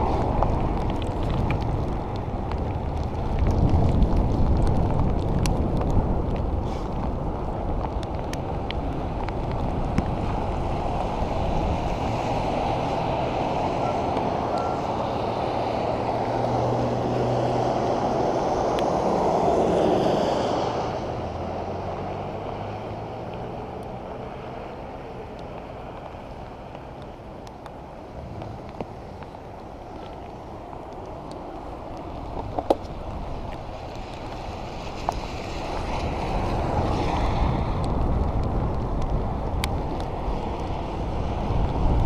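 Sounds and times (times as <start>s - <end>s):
wind buffeting microphone: 0.0s - 42.0s
motor vehicle passing: 7.8s - 27.3s.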